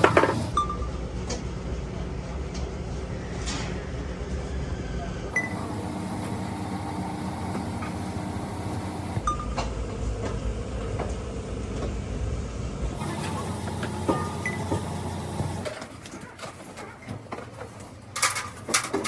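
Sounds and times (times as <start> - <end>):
steady low hum: 5.3 - 9.3.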